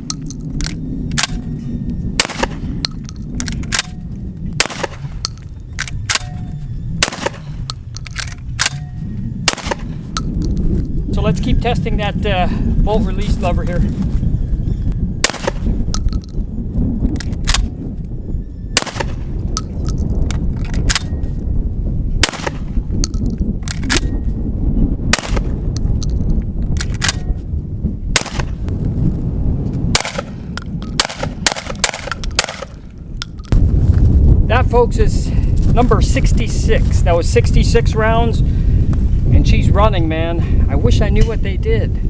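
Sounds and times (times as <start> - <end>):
shotgun shots: 2.2 - 2.8, 4.6 - 5.2, 7.0 - 10.0, 15.2 - 15.8, 18.8 - 19.3, 22.2 - 22.8, 25.1 - 25.6, 28.1 - 28.6, 29.9 - 30.4, 31.0 - 32.8
metallic clicks of shotgun bolt: 2.3 - 4.0, 7.2 - 8.8, 26.8 - 27.3.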